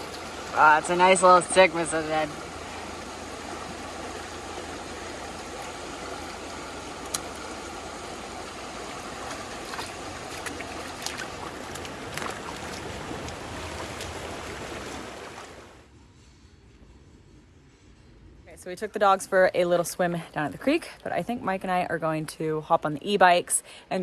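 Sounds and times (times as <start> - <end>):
creek water rushing: 0.0 - 15.8.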